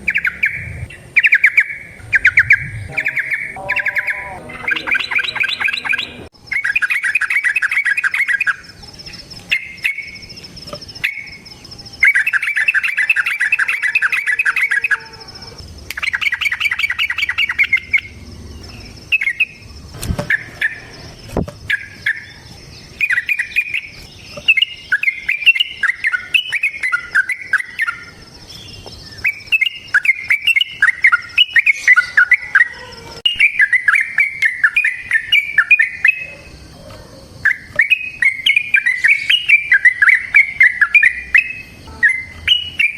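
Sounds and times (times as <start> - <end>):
bird singing trills and whistles: 0.0 - 42.9
faint high-pitched tone: 2.1 - 6.3.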